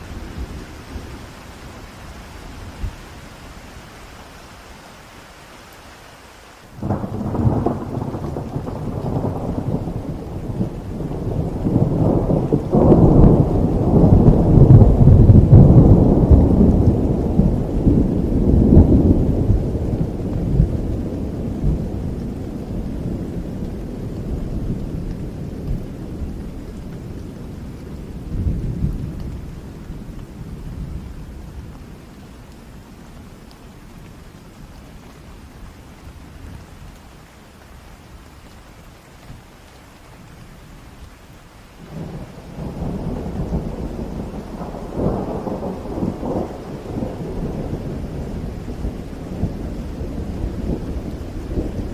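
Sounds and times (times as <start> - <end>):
steady rain: 0.0 - 51.9
rolling thunder: 6.8 - 31.9, 41.8 - 51.9.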